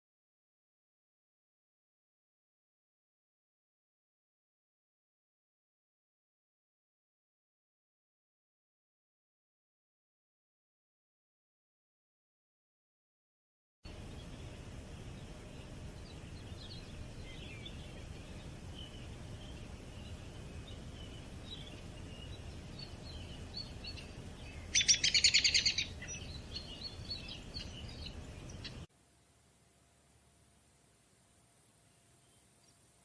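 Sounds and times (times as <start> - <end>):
birds chirping and calling: 13.9 - 28.9
low steady rumble: 13.9 - 33.0
loud rapid bird trill: 14.1 - 28.9.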